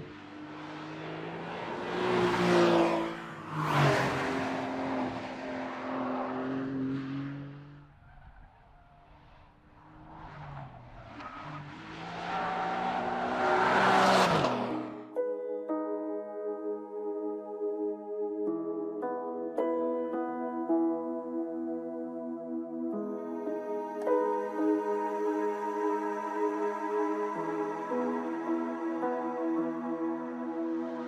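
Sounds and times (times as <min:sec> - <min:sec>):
car driving by: 0:00.0 - 0:15.2.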